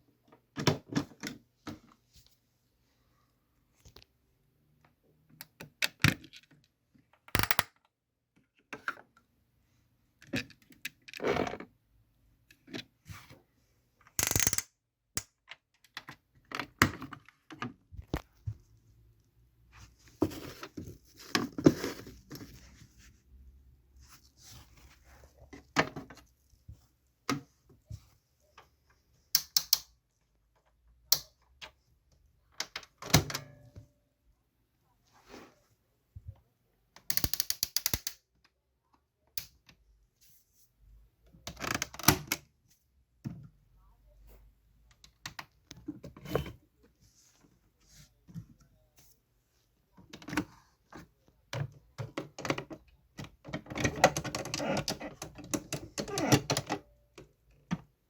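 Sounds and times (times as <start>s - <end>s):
plastic toy clicks and knocks: 7.2s - 7.9s, 14.2s - 16.0s, 29.4s - 29.9s, 37.0s - 38.2s.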